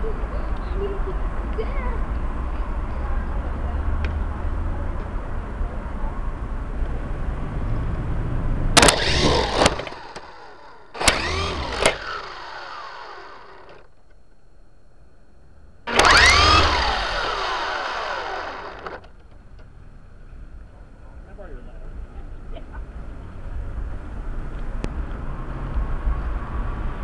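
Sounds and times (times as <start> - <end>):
toy helicopter rotor whine: 8.8 - 14.0, 15.9 - 19.4.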